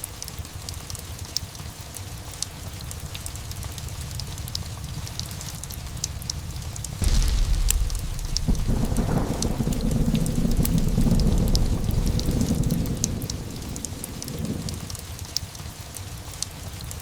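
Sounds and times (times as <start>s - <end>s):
steady rain: 0.0s - 17.0s
fireplace crackling: 0.9s - 17.0s
thunder rolling: 4.0s - 15.0s.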